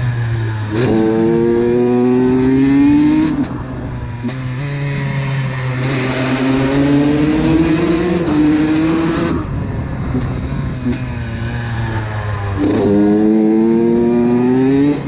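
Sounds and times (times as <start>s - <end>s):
two-stroke engine revving: 0.7s - 3.6s, 12.3s - 15.0s.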